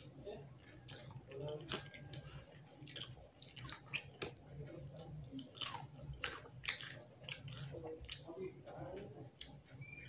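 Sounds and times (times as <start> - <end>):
wet chewing and lip smacks: 0.6 - 8.6.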